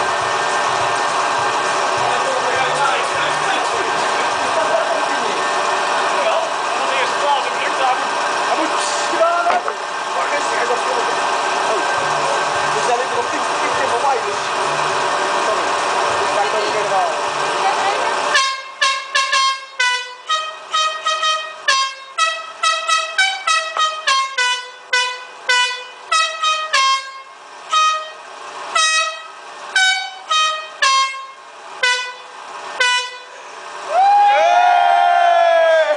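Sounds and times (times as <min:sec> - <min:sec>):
air horns playing a tune: 0:18.3 - 0:33.4.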